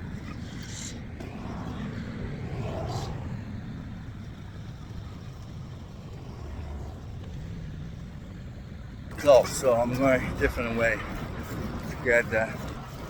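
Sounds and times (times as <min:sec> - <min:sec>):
wind and road noise: 0:00.0 - 0:13.0
vehicle passing by: 0:01.2 - 0:04.1.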